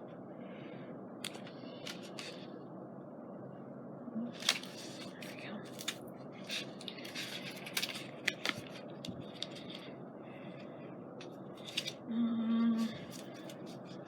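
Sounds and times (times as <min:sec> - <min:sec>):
paper rustling and tapping: 0:04.4 - 0:09.9.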